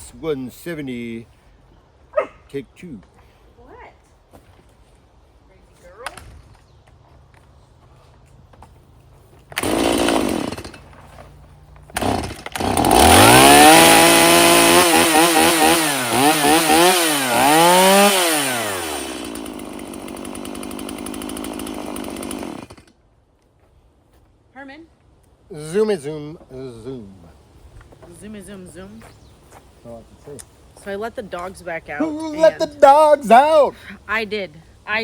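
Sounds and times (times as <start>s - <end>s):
chainsaw pull-started and revving: 9.5s - 11.2s, 11.9s - 23.0s.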